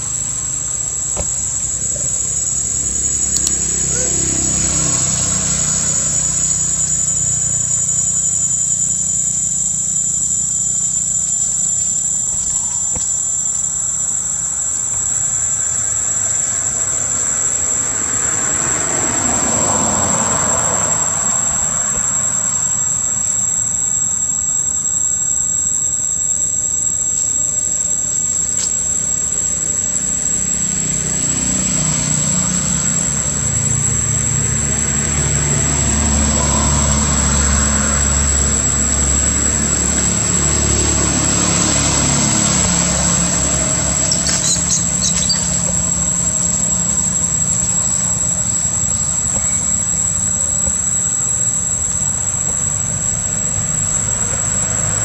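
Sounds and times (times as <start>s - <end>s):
vehicle engine rumbling: 0.0s - 23.9s, 27.8s - 55.0s
high-pitched whine: 0.0s - 55.0s.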